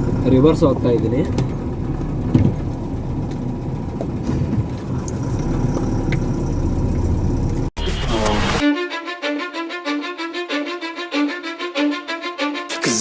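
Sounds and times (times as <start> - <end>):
diesel truck engine running: 0.0 - 7.8.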